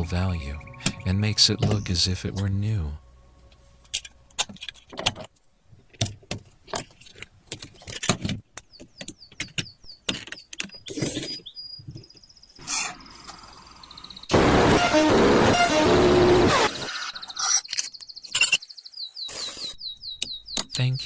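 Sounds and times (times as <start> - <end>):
high buzz: 14.3 - 16.9.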